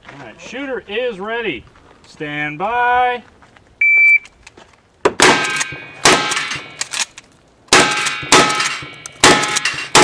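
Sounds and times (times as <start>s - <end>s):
shotgun shots: 5.1s - 7.0s, 7.7s - 10.0s
steel plate clanging: 7.8s - 10.0s.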